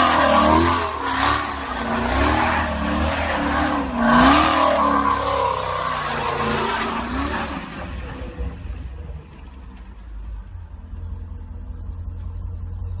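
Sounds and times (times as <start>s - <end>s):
engine revving: 0.0s - 8.6s
low rumble of rolling vehicle: 0.0s - 13.0s.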